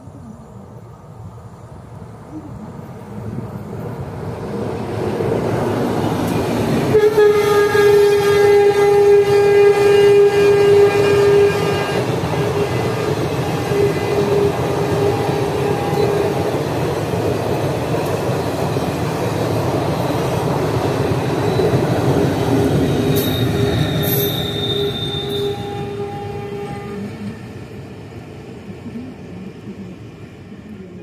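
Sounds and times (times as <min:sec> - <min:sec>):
train wheels rumbling on rails: 0:00.0 - 0:31.0
locomotive horn blast: 0:06.9 - 0:16.4, 0:23.1 - 0:27.3
thin high squeal: 0:23.1 - 0:25.9.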